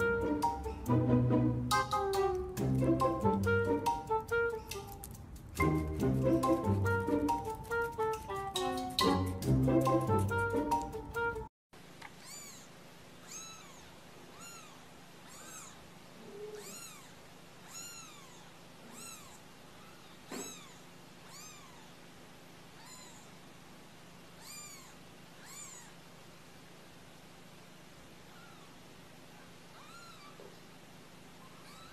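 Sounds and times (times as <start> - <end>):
kittens mewing: 12.2 - 22.1, 22.7 - 23.4, 24.3 - 26.0, 28.2 - 30.7, 31.4 - 31.9.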